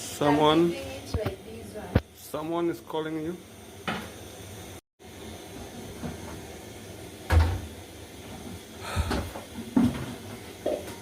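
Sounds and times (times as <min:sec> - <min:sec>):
kitchen knocks and thuds: 0:07.3 - 0:07.7, 0:08.9 - 0:11.0.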